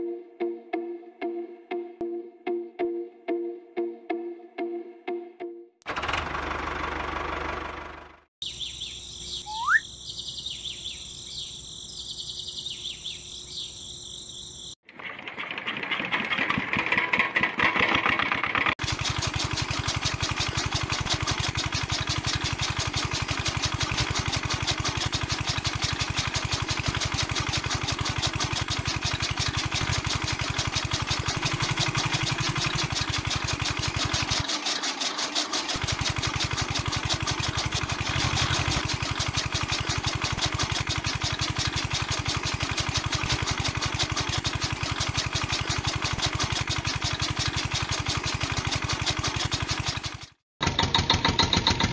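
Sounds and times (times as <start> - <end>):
small motor chugging: 5.9 - 51.9
birds chirping: 8.4 - 14.8.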